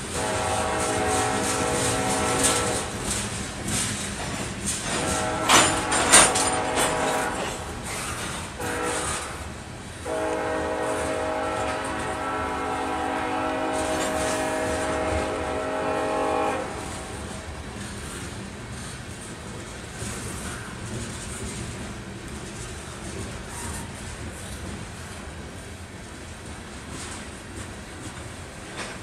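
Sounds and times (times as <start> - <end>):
locomotive air horn blasts: 0.0 - 3.2, 4.8 - 17.5
train wheels clanking: 0.0 - 29.0.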